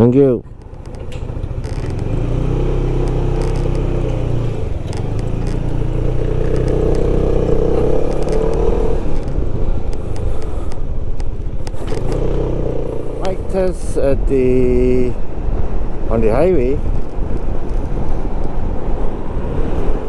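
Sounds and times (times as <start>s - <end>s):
low wind rumble: 0.0s - 20.0s
scattered clicks: 0.5s - 13.4s
motorcycle engine running: 0.5s - 19.0s.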